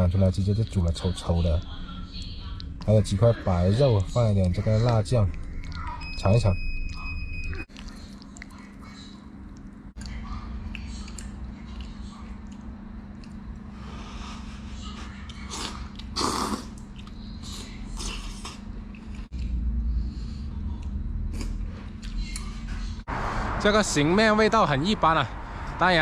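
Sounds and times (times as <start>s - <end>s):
steady low hum: 0.0s - 26.0s
person chewing noodles: 9.4s - 19.6s, 20.8s - 22.5s
person breathing: 13.7s - 14.9s, 25.3s - 25.8s
slurping: 15.1s - 19.3s.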